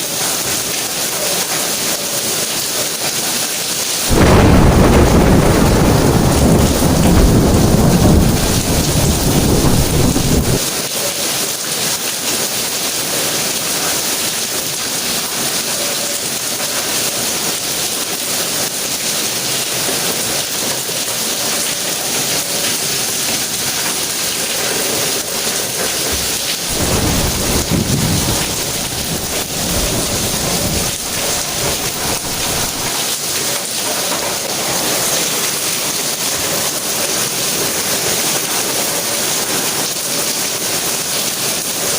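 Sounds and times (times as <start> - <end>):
steady rain falling: 0.0 - 41.9
rolling thunder: 4.1 - 10.6, 26.0 - 33.0.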